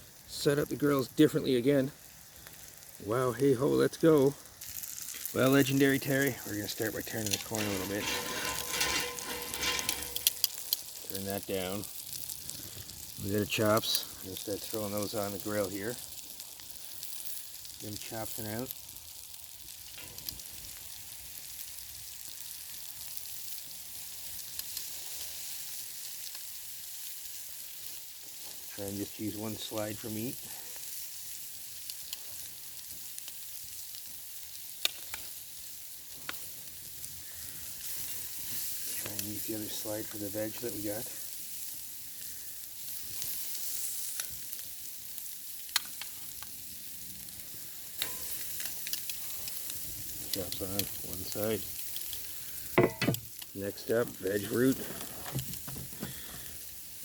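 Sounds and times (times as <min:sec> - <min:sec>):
meat sizzling on a grill: 0:00.0 - 0:57.0
sharp crackles: 0:02.1 - 0:57.0.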